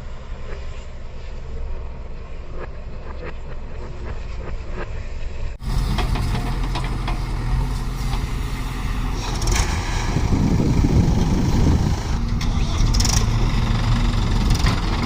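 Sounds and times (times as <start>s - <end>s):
heavy diesel engine running: 5.6s - 15.0s.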